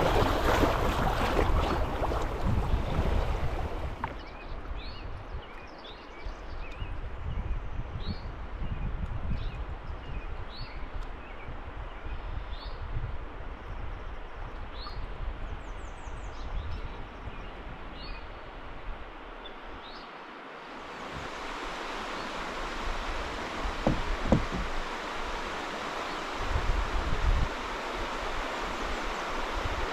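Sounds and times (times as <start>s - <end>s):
river water rushing: 0.0s - 4.3s, 20.1s - 29.9s
knocks: 23.8s - 24.7s.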